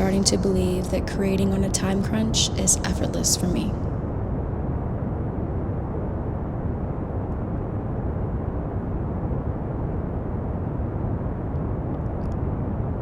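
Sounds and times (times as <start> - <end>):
pink noise: 0.0 - 3.8.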